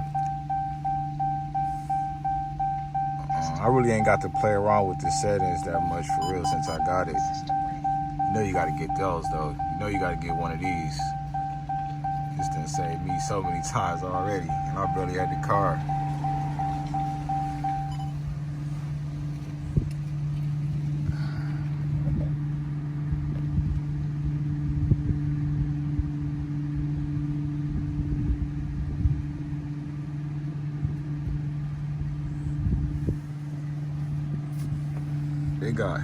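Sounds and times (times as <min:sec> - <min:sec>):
car engine idling: 0:00.0 - 0:24.4, 0:29.4 - 0:36.0.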